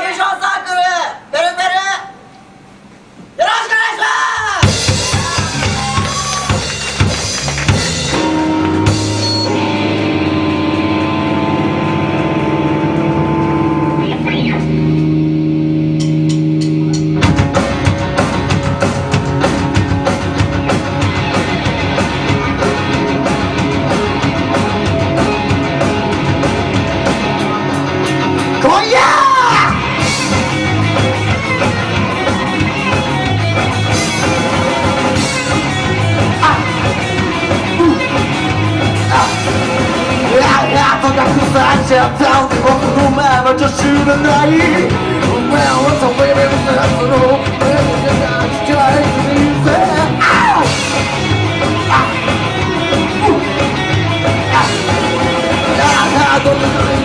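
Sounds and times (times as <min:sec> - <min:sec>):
drum beat: 0:04.6 - 0:13.6, 0:15.9 - 0:28.6, 0:29.2 - 0:57.0
bass guitar: 0:04.6 - 0:57.0
electric guitars: 0:04.6 - 0:57.0
rock band playing live: 0:04.6 - 0:57.0
person singing: 0:40.2 - 0:50.8, 0:54.4 - 0:57.0.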